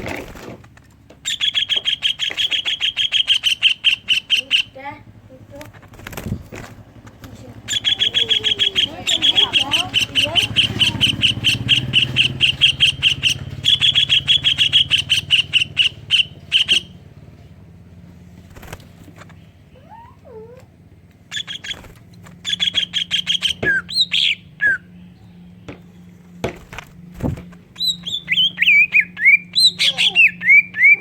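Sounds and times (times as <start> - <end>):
bird singing high repeated notes: 1.3 - 4.8, 7.6 - 17.0, 21.3 - 25.6, 27.7 - 31.0.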